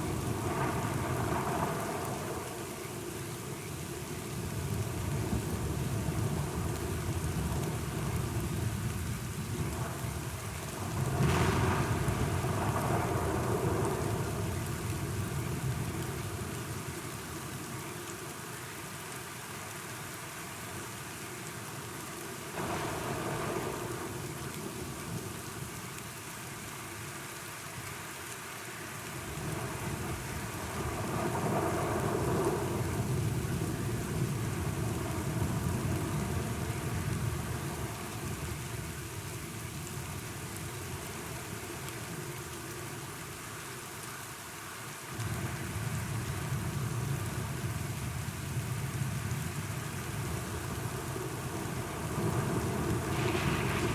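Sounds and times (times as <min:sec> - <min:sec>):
steady rain falling: 0:00.0 - 0:53.9
rolling thunder: 0:05.0 - 0:16.2, 0:29.4 - 0:37.5, 0:50.1 - 0:53.9.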